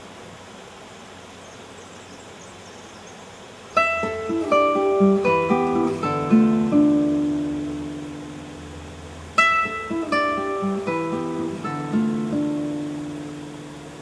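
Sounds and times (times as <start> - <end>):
steady hiss: 0.0 - 14.0
acoustic guitar plucking notes: 3.8 - 14.0.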